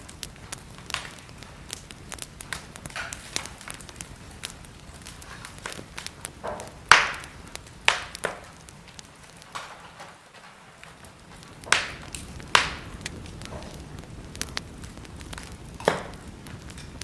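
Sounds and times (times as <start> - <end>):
fire popping: 0.0 - 17.0
soft steady hiss: 0.0 - 17.0
wood fire crackling: 0.0 - 17.0.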